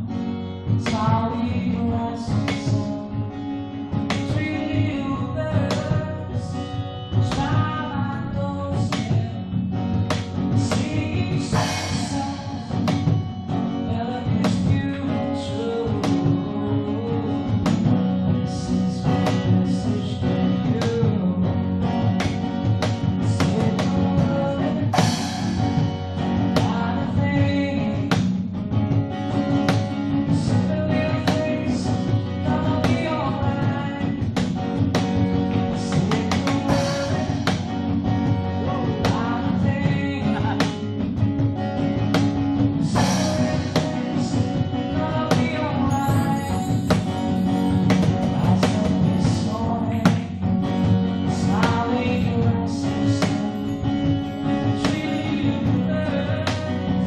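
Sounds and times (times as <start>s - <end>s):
drum kit: 0.0s - 57.0s
guitar: 0.0s - 57.0s
person singing: 10.5s - 17.8s, 23.2s - 25.8s, 35.5s - 37.8s, 38.4s - 41.0s, 42.8s - 50.4s, 51.1s - 57.0s.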